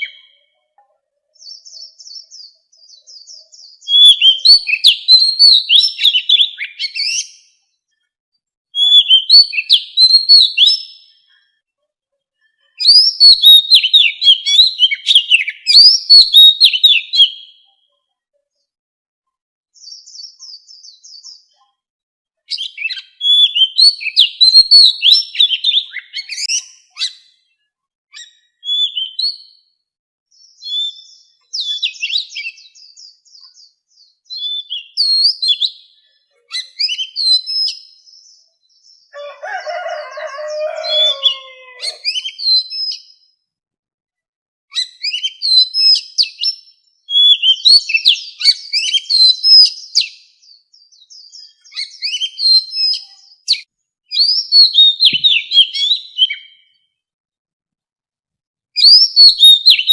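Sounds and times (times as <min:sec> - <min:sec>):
bird singing whistles and chirps: 0:00.0 - 0:00.4, 0:01.4 - 0:07.6, 0:08.7 - 0:11.2, 0:12.8 - 0:17.7, 0:19.8 - 0:21.5, 0:22.5 - 0:27.4, 0:28.1 - 0:29.6, 0:30.3 - 0:39.2, 0:40.6 - 0:43.3, 0:44.7 - 0:56.8, 0:58.8 - 0:59.9.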